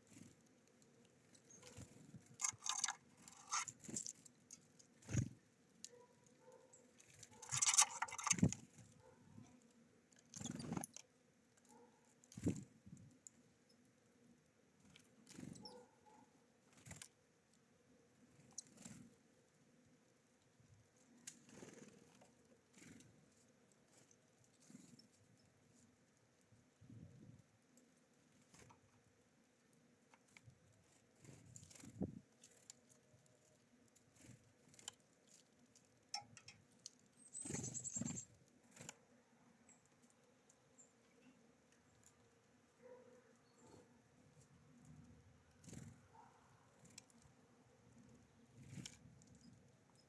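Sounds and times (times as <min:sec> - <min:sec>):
birds tapping and rustling at feeder: 0:00.0 - 0:50.0
high bird chirps: 0:37.2 - 0:38.3.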